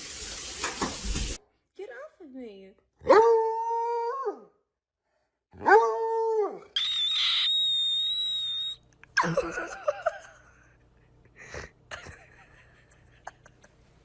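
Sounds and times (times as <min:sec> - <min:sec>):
dog squealing: 0:06.8 - 0:08.8.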